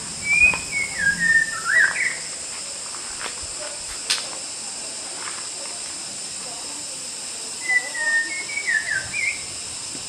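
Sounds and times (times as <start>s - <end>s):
bird whistled song phrase: 0.2s - 2.3s, 7.6s - 9.5s.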